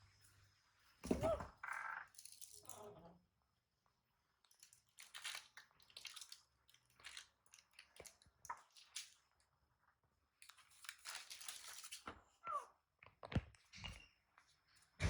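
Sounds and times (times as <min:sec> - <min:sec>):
faint crunching and rustling: 0:04.3 - 0:15.0.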